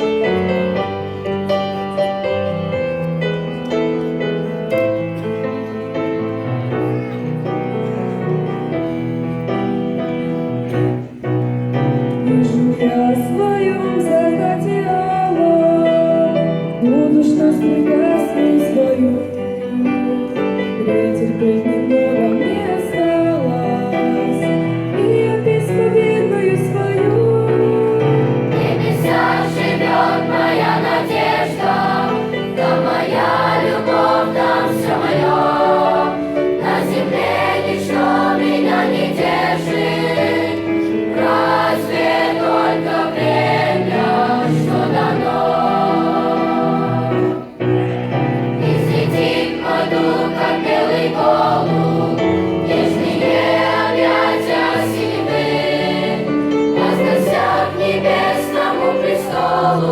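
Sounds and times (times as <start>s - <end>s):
children's choir singing a hymn: 0.0s - 59.9s.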